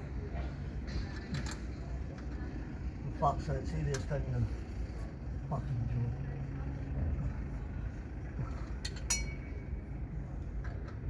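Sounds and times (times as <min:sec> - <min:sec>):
low steady hum: 0:00.0 - 0:11.0
metal tool clinking on metal: 0:08.8 - 0:09.5.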